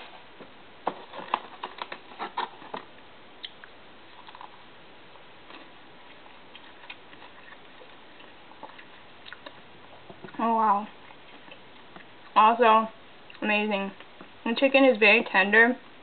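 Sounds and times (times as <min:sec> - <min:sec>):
chewing crispy chicken: 0:01.1 - 0:04.7, 0:05.4 - 0:12.4.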